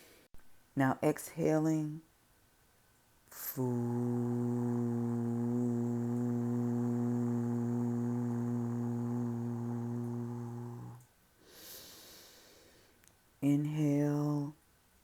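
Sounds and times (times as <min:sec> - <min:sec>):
person exhaling a long low fooo: 0:03.3 - 0:12.8.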